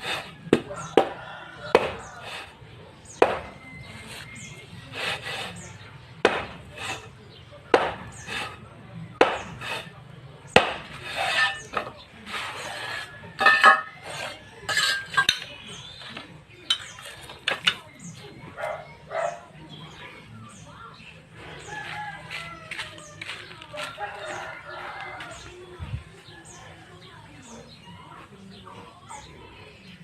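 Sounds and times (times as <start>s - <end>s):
metal trowel scraping concrete: 0.0s - 0.4s, 2.1s - 2.6s, 3.8s - 5.8s, 6.6s - 7.2s, 8.1s - 8.7s, 9.4s - 10.0s, 10.6s - 18.2s.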